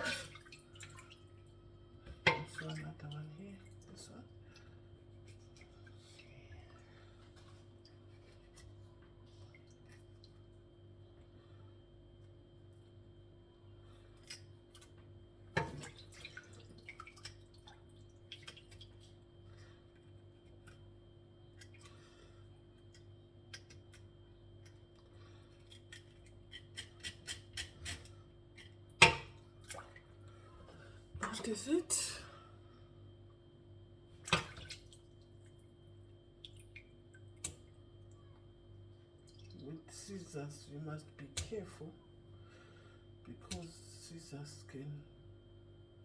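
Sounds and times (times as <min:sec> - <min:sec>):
low steady hum: 0:00.0 - 0:46.0
kitchen scissors snipping: 0:25.9 - 0:28.0.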